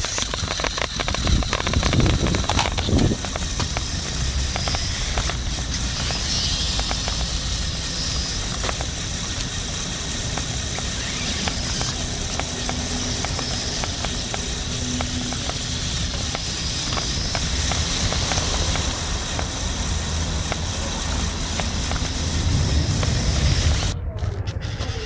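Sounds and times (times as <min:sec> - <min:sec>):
plastic parts clicking: 0:00.0 - 0:07.4
small electric motors whining: 0:00.0 - 0:25.0.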